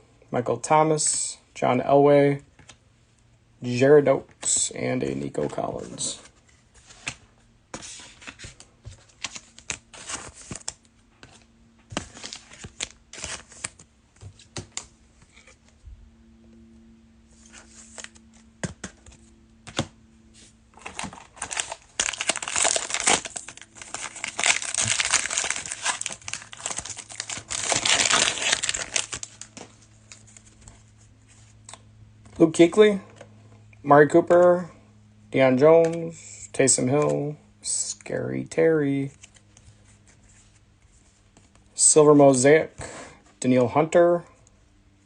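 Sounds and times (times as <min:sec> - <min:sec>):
wrappers torn and crumpled: 0:20.8 - 0:30.2.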